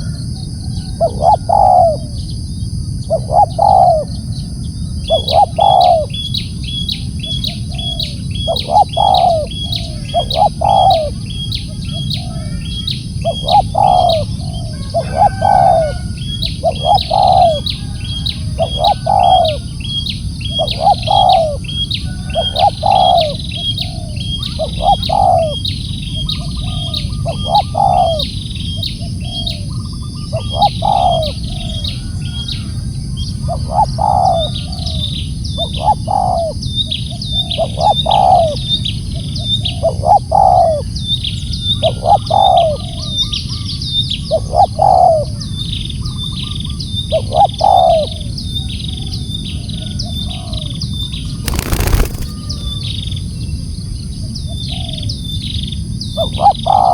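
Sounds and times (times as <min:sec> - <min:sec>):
dove cooing: 0:00.0 - 0:02.3, 0:03.0 - 0:06.3, 0:07.2 - 0:36.6, 0:37.3 - 0:38.7, 0:39.6 - 0:40.9, 0:41.8 - 0:43.1, 0:44.3 - 0:45.4, 0:47.1 - 0:48.3, 0:51.5 - 0:52.8, 0:56.2 - 0:56.9
small birds chirping: 0:00.0 - 0:49.5, 0:50.2 - 0:53.6.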